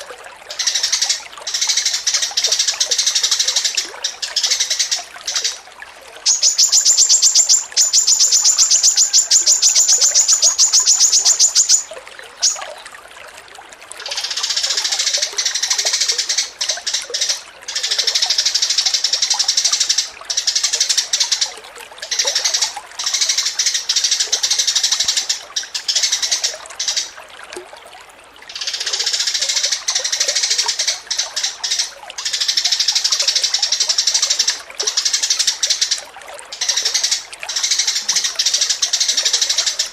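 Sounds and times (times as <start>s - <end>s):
songbird trilling and chattering: 6.3s - 12.7s.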